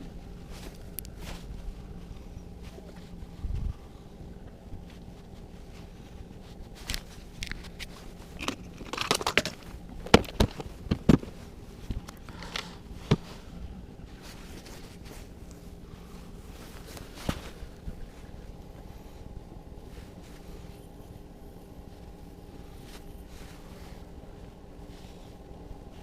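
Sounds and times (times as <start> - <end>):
rustling and scraping: 0.0 - 26.0.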